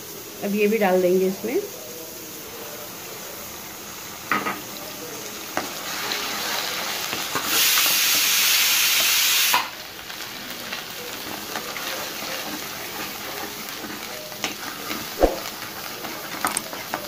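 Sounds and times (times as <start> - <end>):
loud hiss: 0.0 - 10.6
paste sizzling in hot oil: 0.0 - 17.0.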